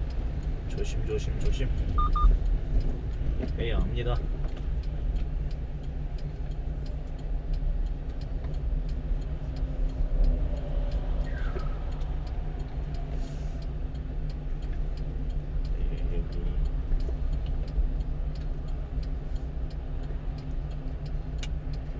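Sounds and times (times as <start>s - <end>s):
faint regular ticks: 0.0s - 21.9s
truck engine running low: 0.0s - 21.9s.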